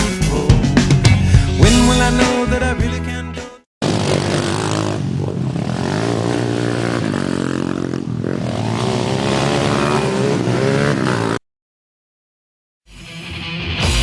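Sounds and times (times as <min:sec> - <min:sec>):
dirt bike engine revving: 0:03.8 - 0:11.4.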